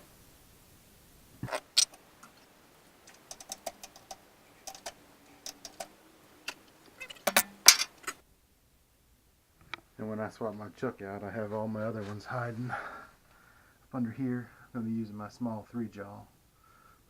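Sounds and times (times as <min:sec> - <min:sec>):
metal tools clinking on lathe chuck: 0:07.0 - 0:08.2.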